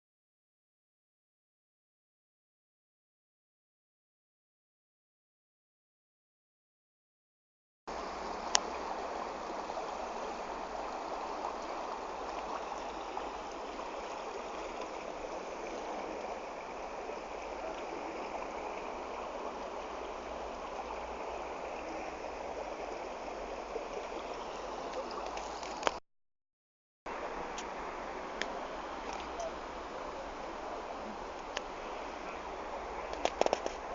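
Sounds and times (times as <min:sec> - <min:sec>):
floodwater flowing: 0:07.9 - 0:26.0, 0:27.1 - 0:33.9.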